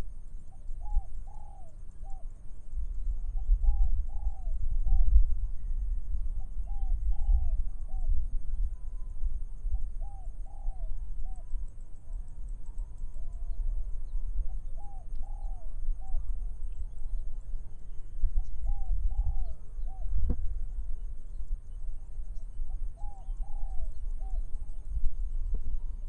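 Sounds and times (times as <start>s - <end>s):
faint high whine: 0.0s - 26.0s
dove cooing: 0.8s - 2.3s, 3.6s - 5.0s, 6.6s - 8.1s, 10.0s - 11.5s, 18.4s - 20.3s, 22.7s - 24.5s
wind rumble: 2.6s - 10.0s.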